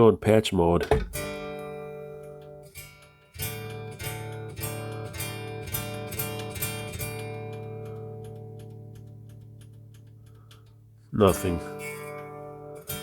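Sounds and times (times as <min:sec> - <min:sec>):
guitar chord strummed: 0:01.0 - 0:09.2, 0:11.2 - 0:13.0.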